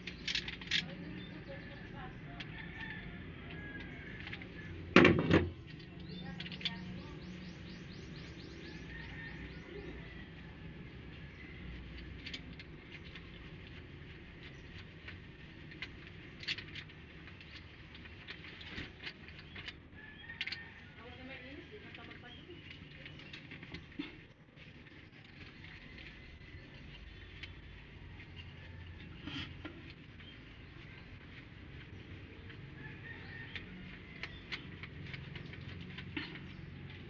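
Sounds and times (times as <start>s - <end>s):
fast run of clicks: 29.8s - 37.0s.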